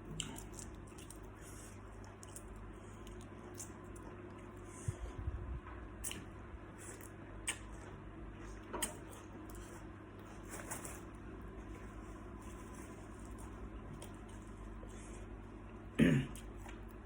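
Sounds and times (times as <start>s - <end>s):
person chewing shrimp: 0.0s - 4.8s, 6.0s - 7.8s
wet squishy mouth noises: 6.0s - 7.8s.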